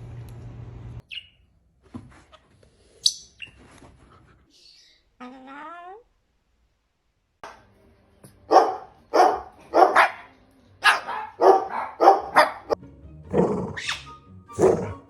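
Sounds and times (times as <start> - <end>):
dog barking: 8.5 - 12.8, 14.6 - 15.0.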